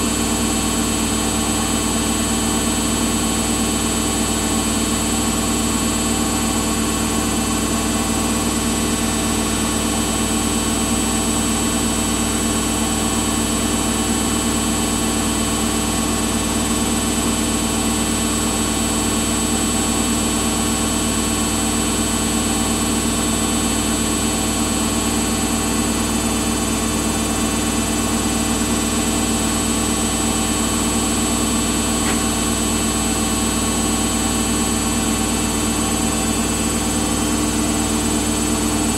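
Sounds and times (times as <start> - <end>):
washing machine humming: 0.0 - 38.9.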